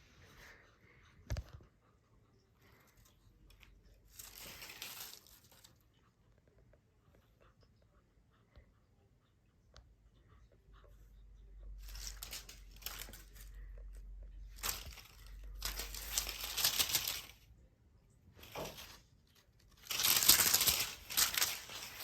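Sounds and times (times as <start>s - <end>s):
scratchy crinkling noise: 2.6s - 6.7s, 11.8s - 17.5s, 18.4s - 22.0s.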